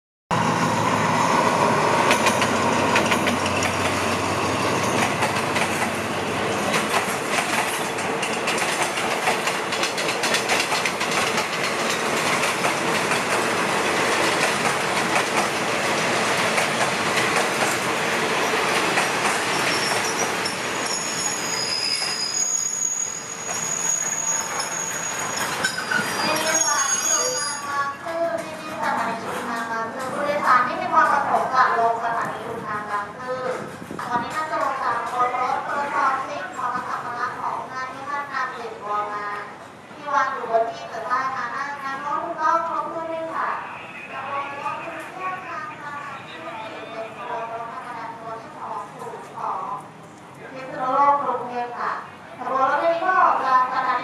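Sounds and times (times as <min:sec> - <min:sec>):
diesel locomotive engine: 0:00.3 - 0:35.0
wheels clicking over rail joints: 0:06.6 - 0:17.9
high wheel squeal: 0:19.4 - 0:28.0.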